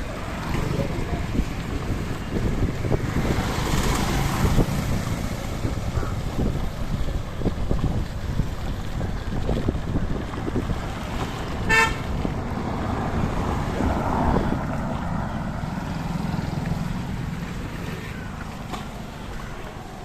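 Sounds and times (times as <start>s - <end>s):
wind on microphone: 0.0s - 18.4s
road noise: 0.0s - 20.0s
vehicle horn beep: 11.7s - 12.1s.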